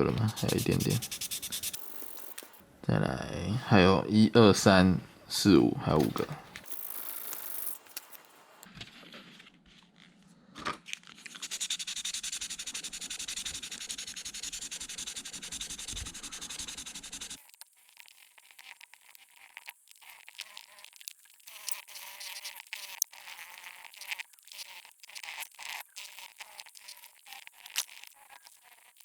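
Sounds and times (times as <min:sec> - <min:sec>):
sandpaper rasping on plastic: 0:00.0 - 0:02.5, 0:11.1 - 0:17.4
quiet scratching: 0:00.0 - 0:02.6, 0:04.1 - 0:11.6.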